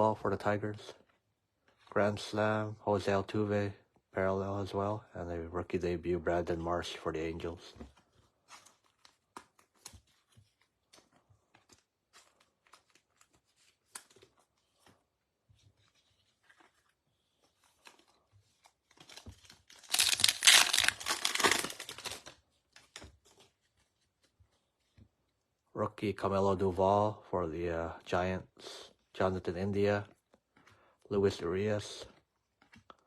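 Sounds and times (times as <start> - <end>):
trading cards clicking and rustling: 15.9 - 23.7
foil wrapper tearing: 19.4 - 22.4.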